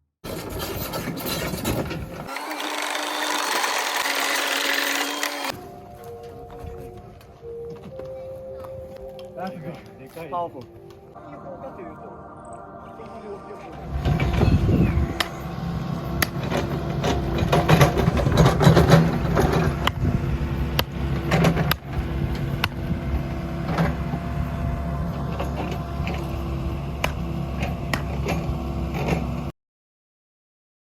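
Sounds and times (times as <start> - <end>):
motor running: 2.2 - 5.6.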